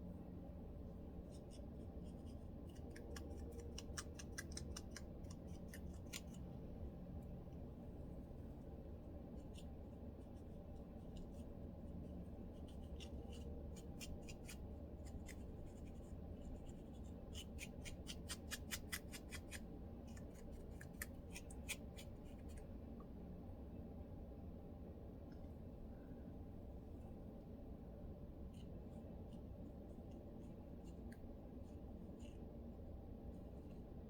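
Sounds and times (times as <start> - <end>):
low hum: 19.6 - 34.0.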